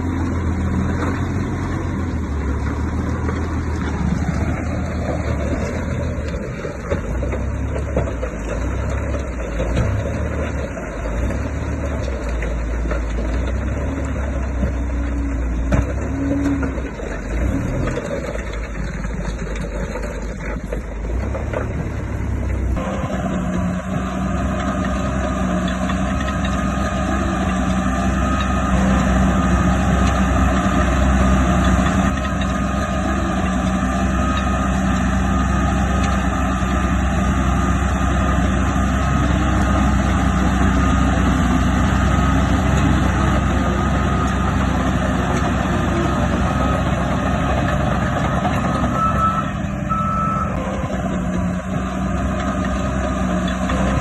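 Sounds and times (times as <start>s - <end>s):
diesel machinery running: 0.0s - 54.0s
reversing alarm beeping: 46.1s - 51.0s.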